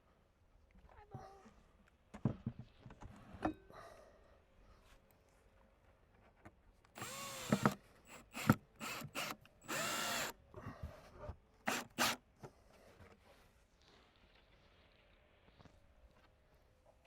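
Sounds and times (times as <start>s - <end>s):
power drill driving screws: 7.0s - 10.4s, 11.7s - 12.2s.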